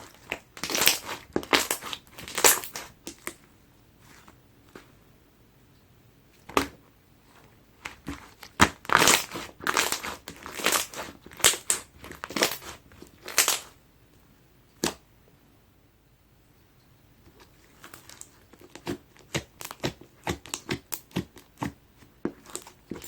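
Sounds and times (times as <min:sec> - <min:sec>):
slime sticky crackles: 0:00.0 - 0:03.4, 0:07.8 - 0:13.8, 0:22.4 - 0:23.0.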